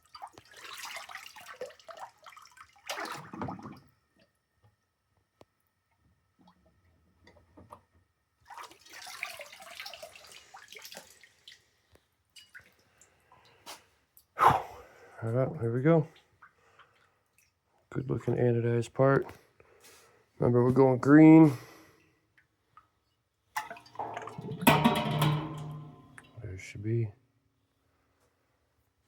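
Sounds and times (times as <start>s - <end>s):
small drips and clicks: 0.0s - 14.4s, 16.1s - 17.9s, 22.0s - 26.4s
water splashing: 23.6s - 26.4s.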